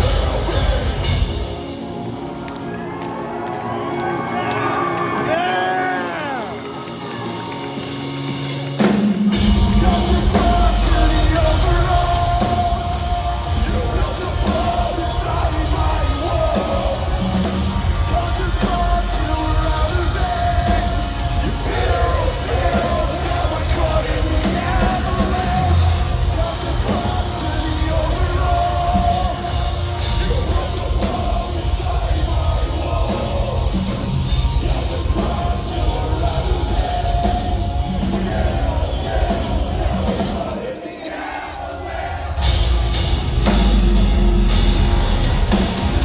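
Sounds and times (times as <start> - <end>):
drum kit: 0.0 - 2.5, 5.3 - 40.7, 42.0 - 46.0
bass guitar: 0.0 - 2.6, 4.9 - 40.5, 42.4 - 46.0
heavy guitars: 0.0 - 46.0
shouted vocals: 3.5 - 7.6.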